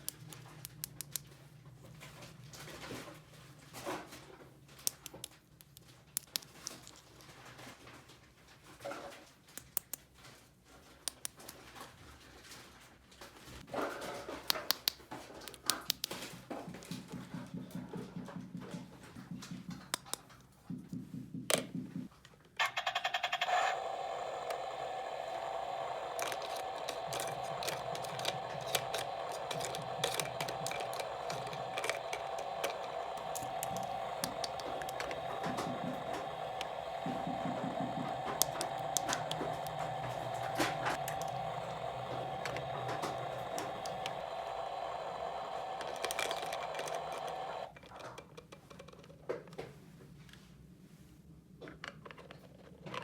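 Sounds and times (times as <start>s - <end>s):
small motor humming: 22.6s - 47.7s
plastic toy parts clicking: 22.6s - 49.2s.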